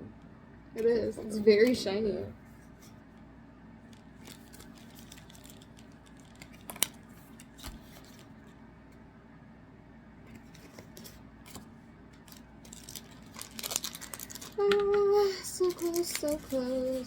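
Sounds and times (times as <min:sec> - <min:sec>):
trading cards rustling: 0:03.8 - 0:08.6, 0:10.3 - 0:17.0.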